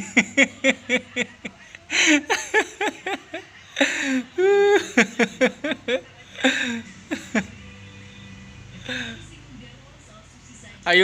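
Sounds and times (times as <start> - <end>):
person laughing: 0.0 - 7.6.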